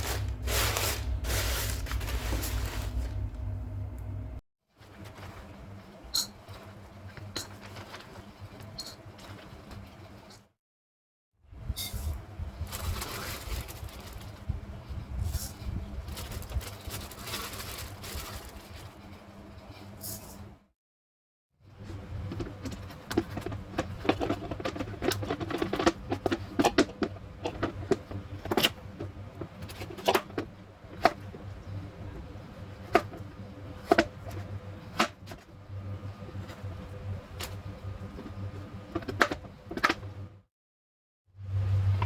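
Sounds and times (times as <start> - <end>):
steady low hum: 0.0 - 10.2, 21.6 - 40.4, 41.4 - 42.0.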